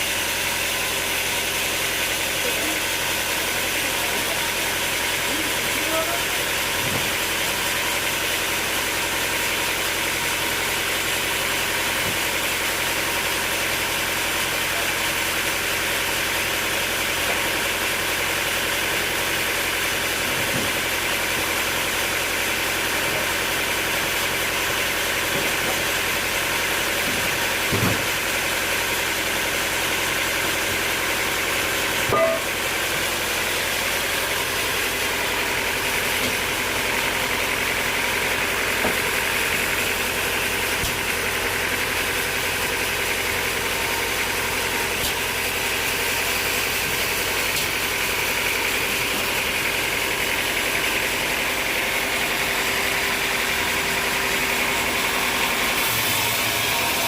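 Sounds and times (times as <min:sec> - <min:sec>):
sawmill machinery humming: 0:00.0 - 0:57.0.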